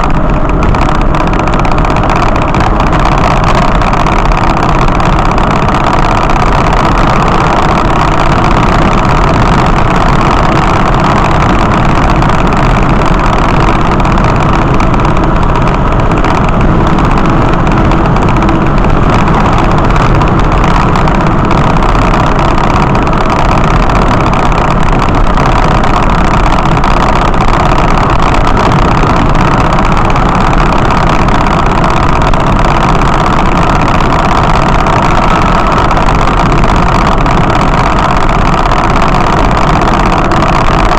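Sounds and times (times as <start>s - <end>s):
vehicle engine and road noise: 0.0s - 40.9s.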